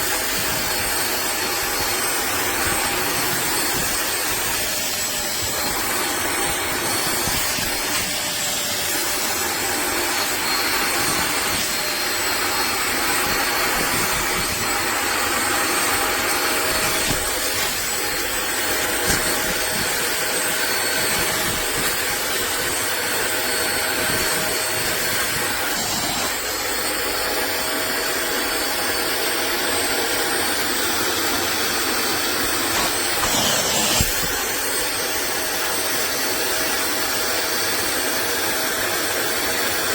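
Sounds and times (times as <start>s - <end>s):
water vacuum motor whining: 0.1s - 26.9s.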